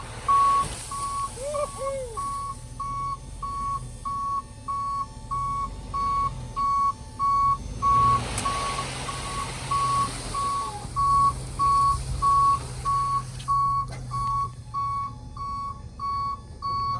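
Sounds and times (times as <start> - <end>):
engine idling: 0.0 - 16.9
vehicle back-up alarm beeping: 0.0 - 16.9.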